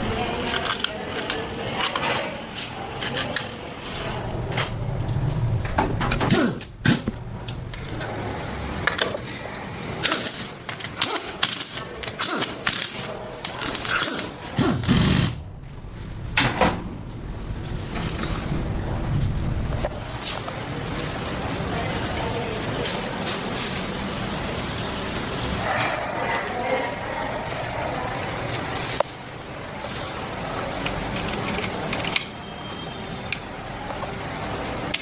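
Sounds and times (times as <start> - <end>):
steady background hum: 0.0 - 35.0.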